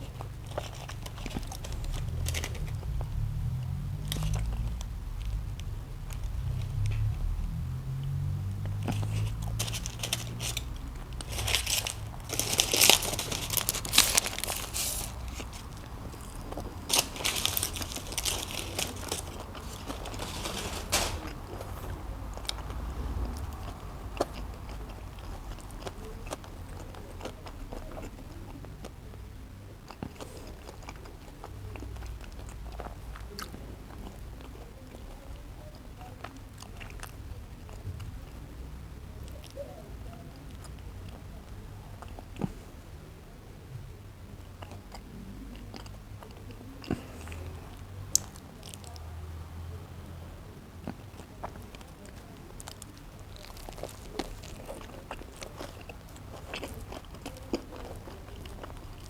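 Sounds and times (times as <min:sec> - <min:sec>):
crisp crunching: 0:00.0 - 0:42.7, 0:44.5 - 0:49.3, 0:50.8 - 0:59.0
biting and chewing burger: 0:00.0 - 0:59.0.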